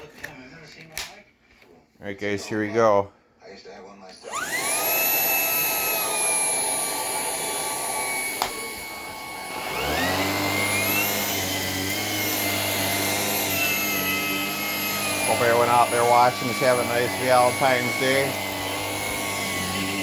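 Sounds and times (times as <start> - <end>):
vacuum motor whine: 4.2 - 20.0.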